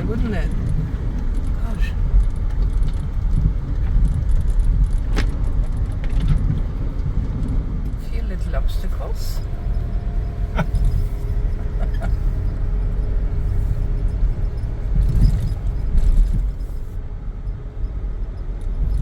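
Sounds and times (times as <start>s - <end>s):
engine and tyre rumble: 0.0s - 19.0s
vehicle knocks over bumps: 2.2s - 7.8s.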